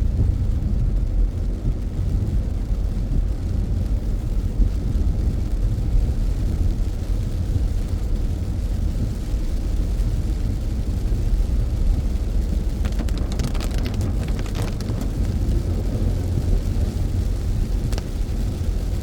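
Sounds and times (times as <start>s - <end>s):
car road and engine rumble: 0.0s - 19.0s
light crackling ticks: 12.4s - 19.0s.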